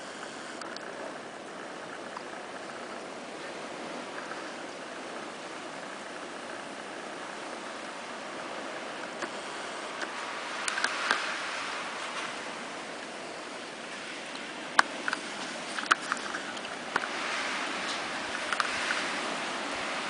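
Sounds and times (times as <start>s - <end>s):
blizzard wind rushing: 0.0s - 20.0s
sharp clicks and ticks: 10.0s - 11.3s, 14.3s - 17.1s.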